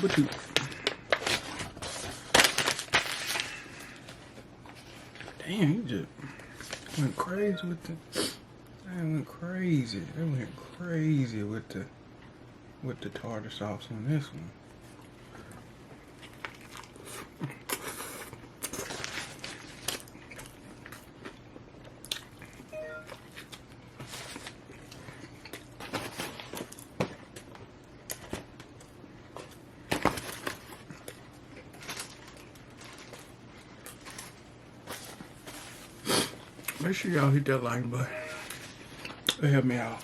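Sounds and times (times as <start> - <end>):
person chewing crunchy food: 16.0 - 36.8.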